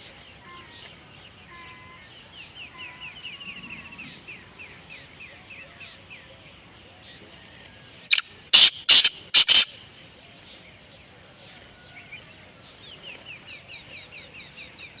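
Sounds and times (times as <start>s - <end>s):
francolin harsh rasping call: 8.1s - 9.9s.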